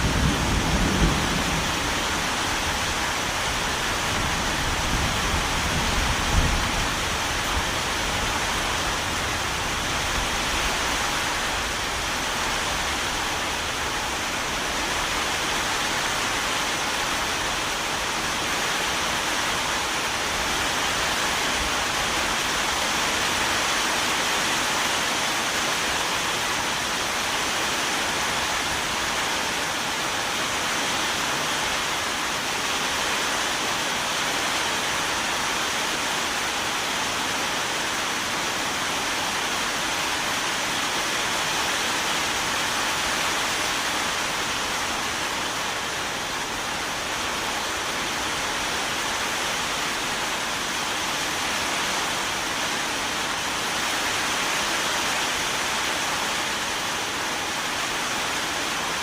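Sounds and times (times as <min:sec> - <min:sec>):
thunder rumble: 0:00.0 - 0:07.0
heavy rainfall: 0:00.0 - 0:59.0.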